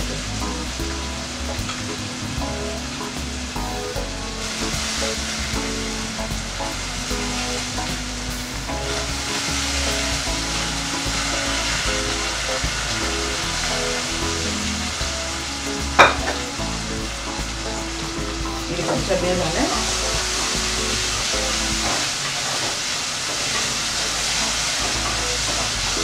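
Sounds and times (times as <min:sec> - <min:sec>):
lentils sizzling in hot oil: 0:00.1 - 0:26.0.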